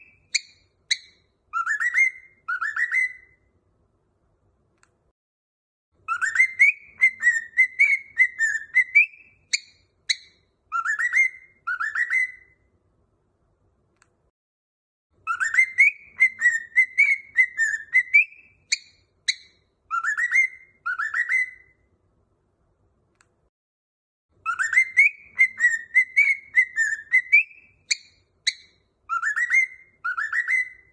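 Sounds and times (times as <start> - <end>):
cockatiel whistling: 0.0 - 3.5, 6.0 - 12.6, 15.2 - 21.8, 24.4 - 30.9.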